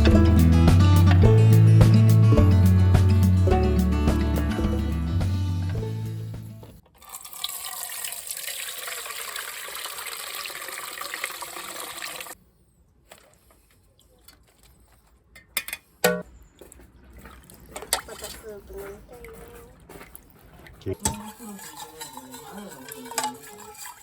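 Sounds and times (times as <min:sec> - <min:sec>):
music: 0:00.0 - 0:06.8
water pouring: 0:06.9 - 0:12.4, 0:20.1 - 0:24.0.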